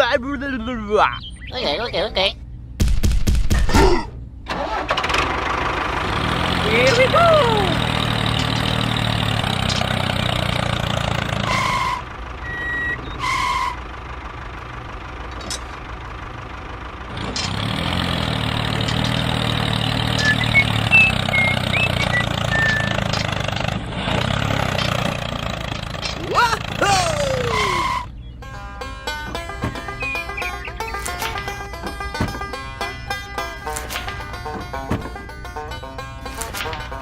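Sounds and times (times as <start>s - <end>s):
vehicle engine running: 4.2s - 37.0s
short electronic beeps: 20.2s - 23.0s.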